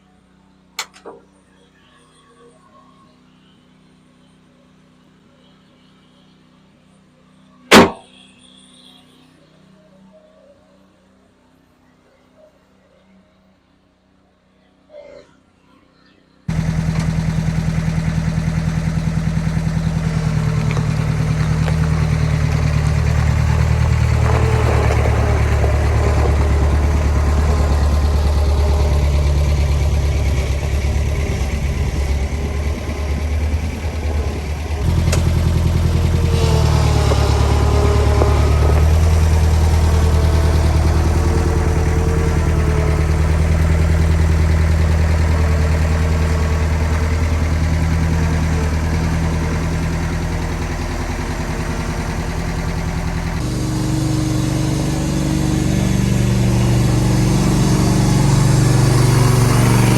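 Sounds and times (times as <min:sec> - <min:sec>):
engine idling: 0:16.5 - 0:59.9.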